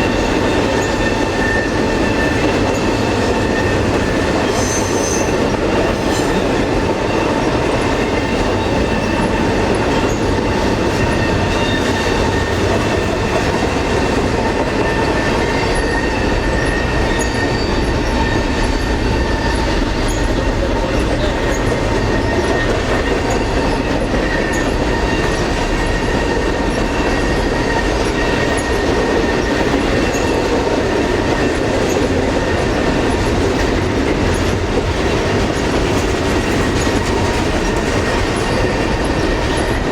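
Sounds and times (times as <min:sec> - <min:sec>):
high-pitched wheel squeal: 0:00.0 - 0:05.4, 0:08.2 - 0:30.5
freight train rolling past: 0:00.0 - 0:39.9.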